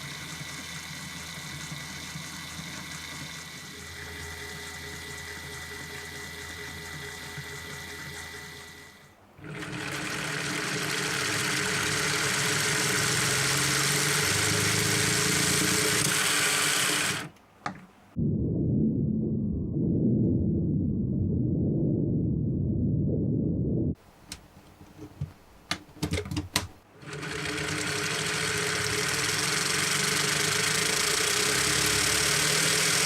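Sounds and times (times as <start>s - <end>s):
model engine gears whirring and clattering: 0.0s - 17.3s, 27.0s - 33.0s.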